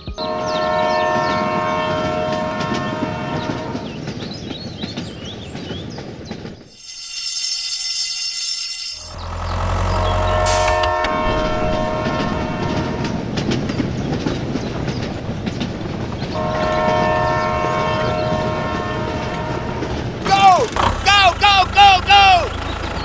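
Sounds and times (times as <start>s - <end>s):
train rumbling clatter: 0.0s - 6.8s, 9.0s - 23.0s
train horn blasts: 0.2s - 4.1s, 8.9s - 13.8s, 16.3s - 22.6s.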